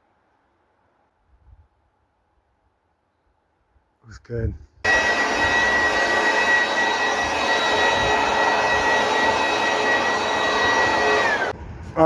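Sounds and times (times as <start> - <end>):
motor-driven machine whining: 4.9 - 11.6.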